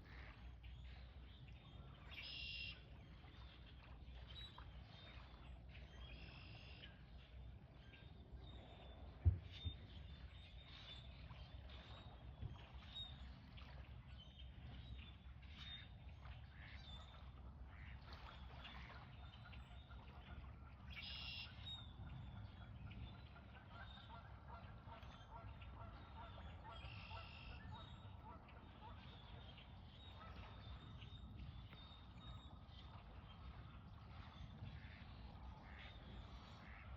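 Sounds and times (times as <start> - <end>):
waterfowl calling: 2.1 - 2.8, 17.8 - 21.6, 23.3 - 29.5, 34.7 - 36.9.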